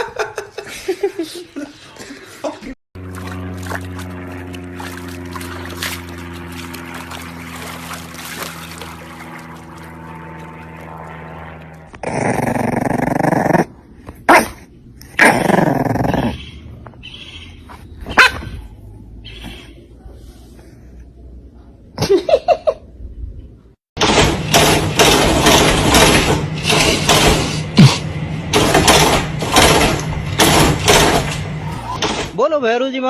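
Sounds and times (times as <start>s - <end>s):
steady low hum: 0.3s - 17.0s
dog barking and growling: 12.1s - 16.5s, 18.1s - 19.2s.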